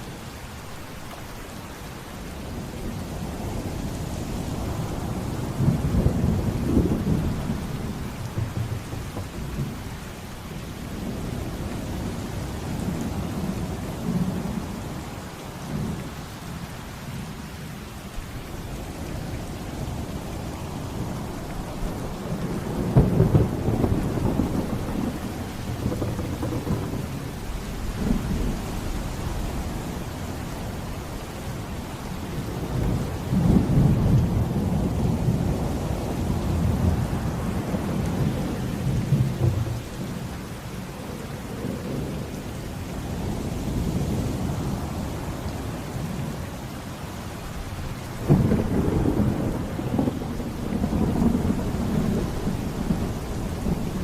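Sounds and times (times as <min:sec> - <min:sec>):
heavy rain: 0:00.0 - 0:54.0
rolling thunder: 0:02.6 - 0:14.6, 0:19.9 - 0:40.4, 0:47.5 - 0:54.0.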